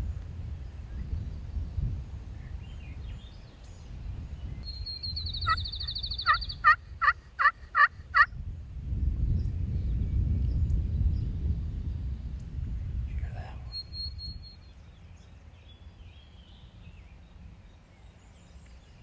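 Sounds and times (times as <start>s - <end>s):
wind rumbling on microphone: 0.0s - 19.0s
turkey rattling call: 5.5s - 8.3s.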